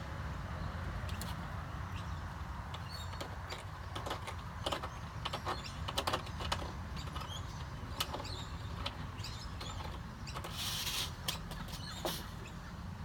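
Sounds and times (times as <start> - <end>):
light clicks and knocks: 2.7 - 10.6.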